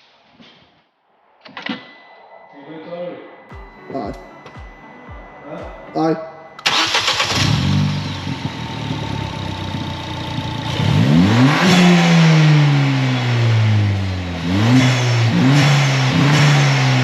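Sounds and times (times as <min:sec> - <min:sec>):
car engine idling and revving: 0:06.6 - 0:17.0.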